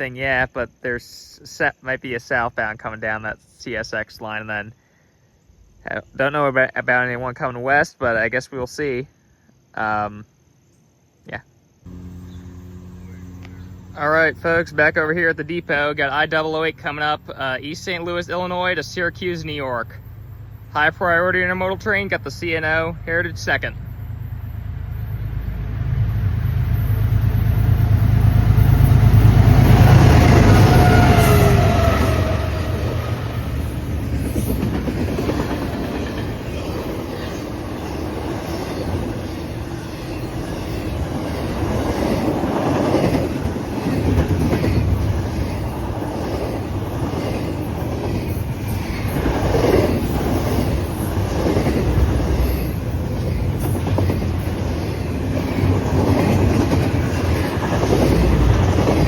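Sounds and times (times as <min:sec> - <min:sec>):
diesel locomotive rumble: 0:11.9 - 0:59.0
train wheels clickety-clack: 0:33.9 - 0:39.1, 0:40.1 - 0:59.0.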